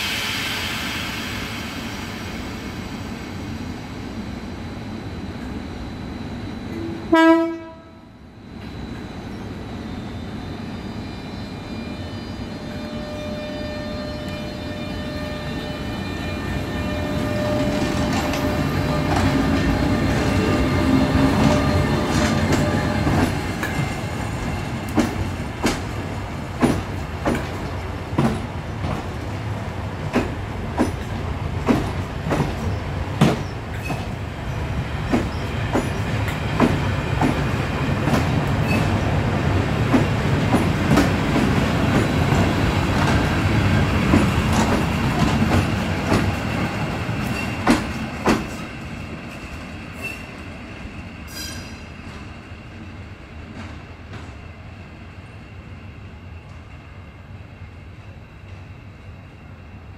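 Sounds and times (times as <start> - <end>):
wheels rumbling on rail: 12.0 - 59.9.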